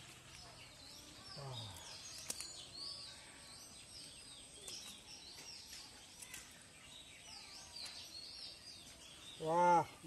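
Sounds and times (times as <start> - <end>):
birds chirping: 0.0 - 10.0
faint clicks: 1.8 - 2.6.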